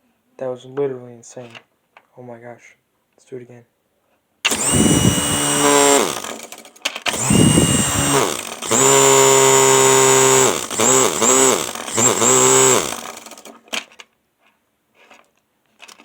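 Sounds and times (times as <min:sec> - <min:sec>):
small electric motor whining: 0:04.5 - 0:13.6.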